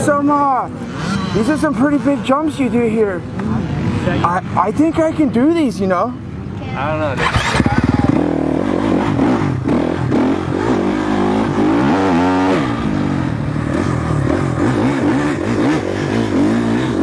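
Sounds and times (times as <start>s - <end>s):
dirt bike engine running hard: 7.2s - 17.0s.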